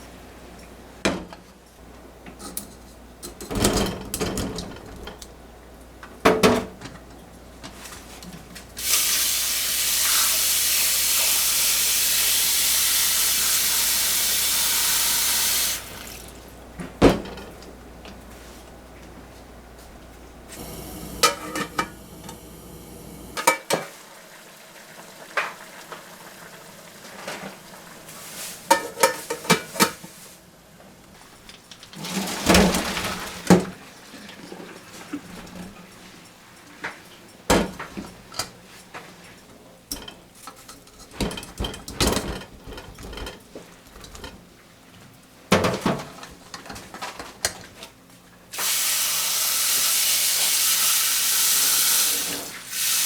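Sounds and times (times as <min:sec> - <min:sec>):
dishes and utensils clinking: 0:02.3 - 0:05.3, 0:17.0 - 0:17.7, 0:21.2 - 0:22.0, 0:23.4 - 0:23.9, 0:28.6 - 0:30.0, 0:39.9 - 0:44.5.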